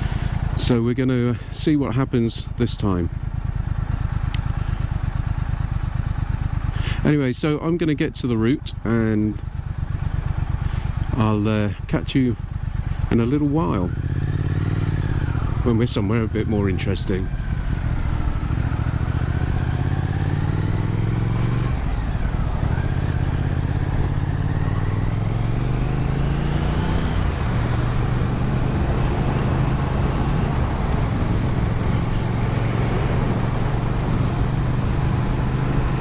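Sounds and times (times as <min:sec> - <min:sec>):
motorcycle engine revving: 0:00.0 - 0:36.0
wind and road noise: 0:00.0 - 0:36.0.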